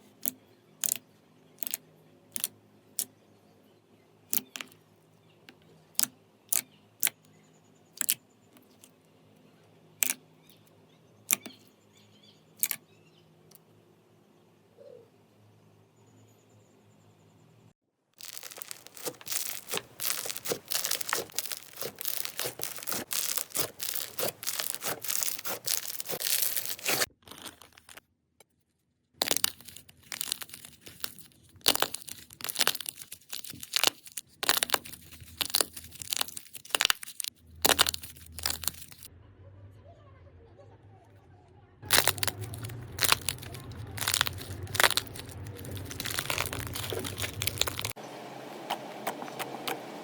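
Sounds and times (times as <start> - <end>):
slime crackling clicks: 18.2 - 27.8.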